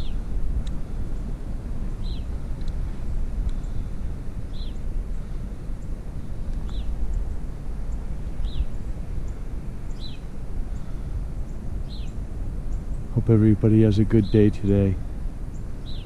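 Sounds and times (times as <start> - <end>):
steady low rumble: 0.0 - 16.0
bird chirping: 2.0 - 2.4, 4.5 - 5.2, 6.6 - 7.3, 7.9 - 16.0.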